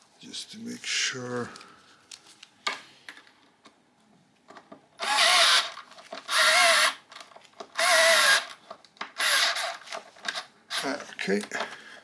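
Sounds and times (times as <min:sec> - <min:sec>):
cordless drill whining: 0:05.0 - 0:07.0, 0:07.8 - 0:08.6, 0:09.2 - 0:09.8.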